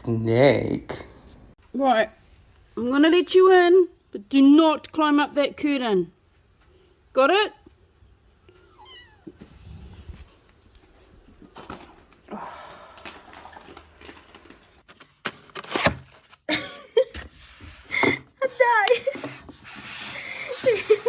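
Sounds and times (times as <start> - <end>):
cat meowing: 8.5 - 9.4.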